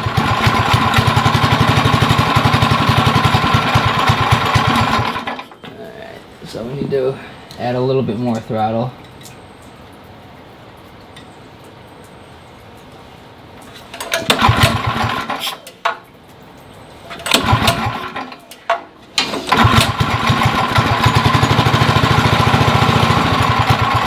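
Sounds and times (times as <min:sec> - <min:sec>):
go-kart engine starting and running: 0:00.0 - 0:05.6, 0:13.9 - 0:15.6, 0:17.1 - 0:24.0.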